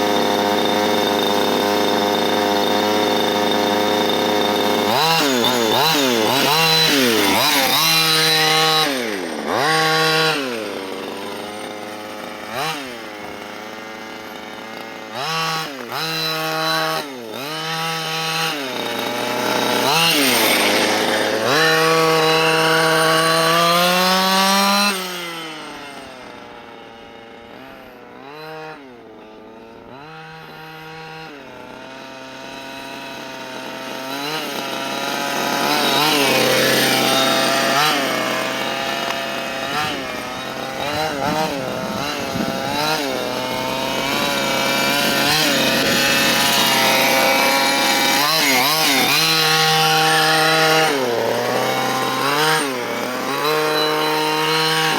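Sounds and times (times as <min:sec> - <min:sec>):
small two-stroke engine revving: 0:00.0 - 0:54.9.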